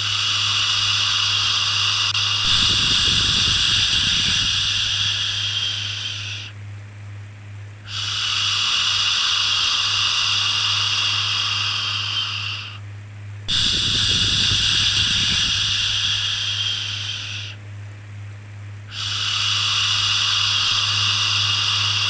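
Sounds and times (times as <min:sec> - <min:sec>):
steady low hum: 0:00.0 - 0:22.0
person shushing: 0:01.9 - 0:06.5, 0:13.5 - 0:17.6.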